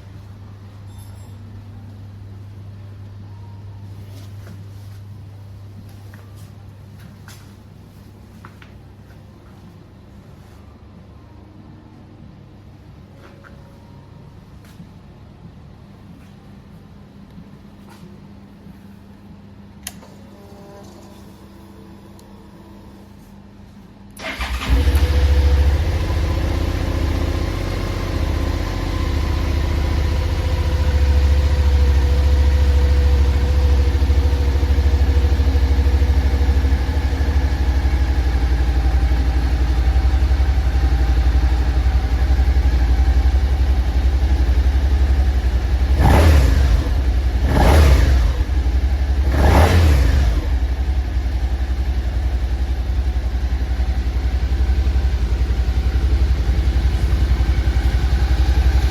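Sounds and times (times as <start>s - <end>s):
motorcycle engine idling: 24.2s - 58.9s.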